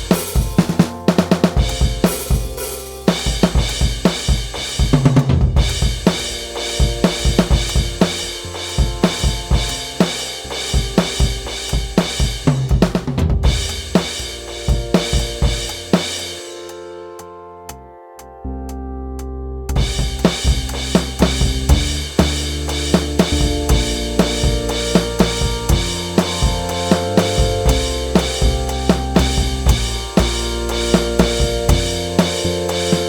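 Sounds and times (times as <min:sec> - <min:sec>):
music with busy drum kit: 0:00.0 - 0:16.5, 0:19.8 - 0:33.0.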